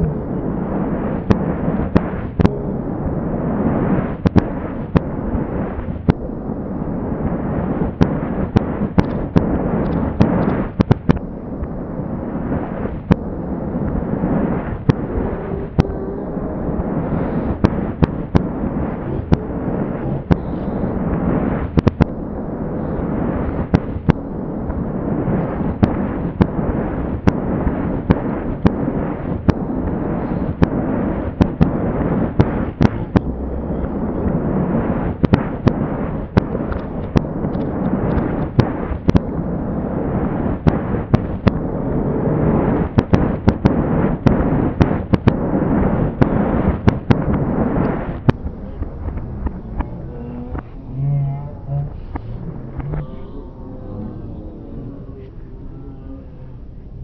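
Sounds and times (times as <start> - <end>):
low rumble: 0.0 - 57.0
sharp cracks: 7.9 - 14.0, 14.6 - 22.3, 23.0 - 39.4, 40.6 - 41.7, 42.4 - 51.0.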